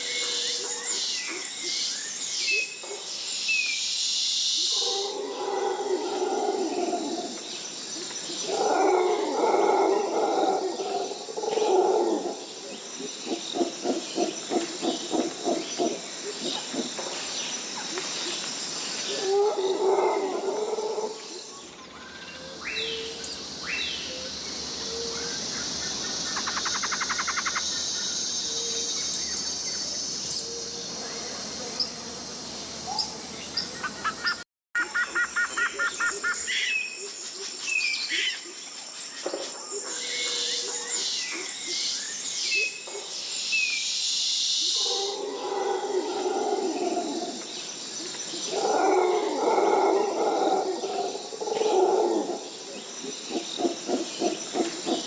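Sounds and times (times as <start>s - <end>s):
insect drone: 0.0s - 55.0s
bird chirps: 21.7s - 36.9s.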